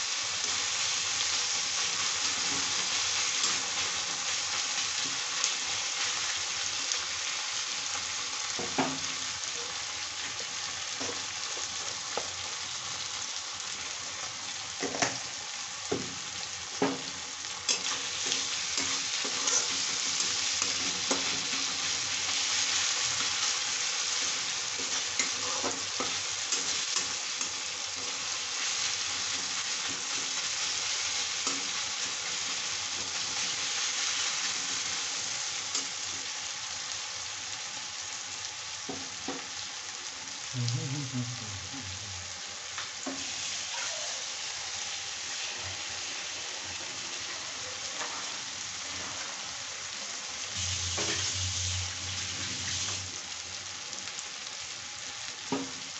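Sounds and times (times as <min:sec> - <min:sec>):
onions sizzling in hot oil: 0:00.0 - 0:55.9
spatula scraping a pan: 0:17.7 - 0:34.9, 0:50.8 - 0:51.6.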